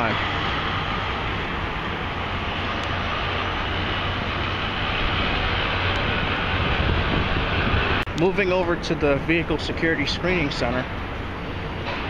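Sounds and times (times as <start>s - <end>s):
city hiss: 0.0s - 12.0s
low city rumble: 0.0s - 12.0s.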